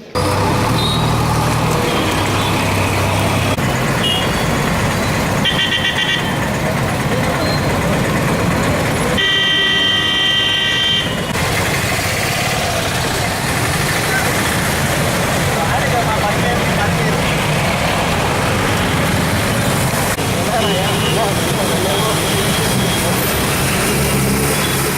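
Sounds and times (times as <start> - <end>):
traffic noise: 0.0 - 24.9
vehicle horns honking: 0.6 - 4.7, 5.3 - 6.7, 9.1 - 11.4, 20.4 - 24.9.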